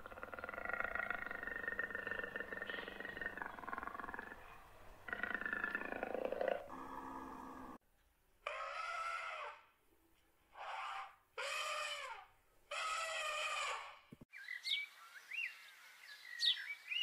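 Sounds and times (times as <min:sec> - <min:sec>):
wild animal calling: 0:00.0 - 0:07.8, 0:08.4 - 0:09.8, 0:10.5 - 0:14.1.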